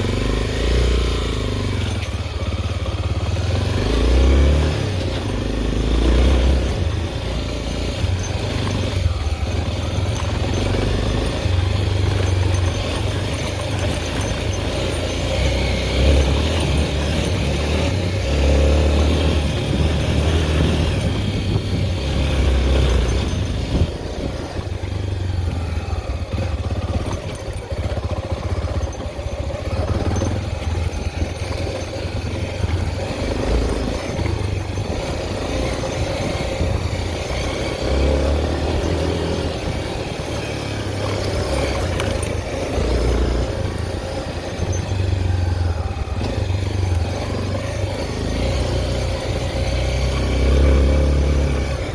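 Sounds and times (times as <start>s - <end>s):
motorcycle engine running: 0.0s - 51.9s
wind rumble on microphone: 15.5s - 47.8s.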